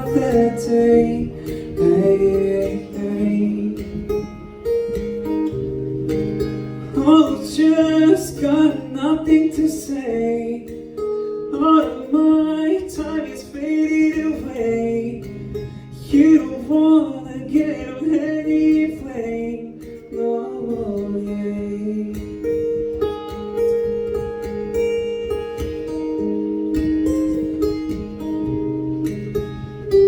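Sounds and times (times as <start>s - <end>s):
person singing wordless melody: 0.0s - 4.1s, 6.9s - 10.9s, 11.5s - 22.6s
acoustic guitar: 0.0s - 30.0s.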